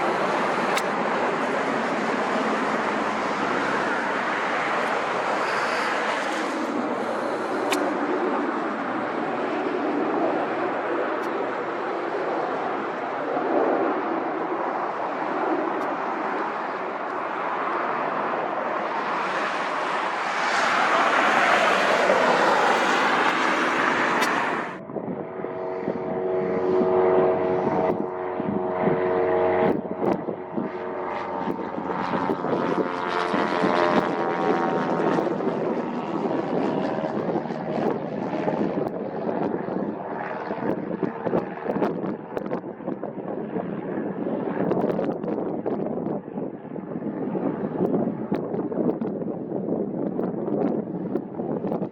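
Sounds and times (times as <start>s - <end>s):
propeller drone: 0.0s - 51.9s
turboprop aircraft passing: 0.0s - 51.9s
wind on microphone: 0.0s - 51.9s.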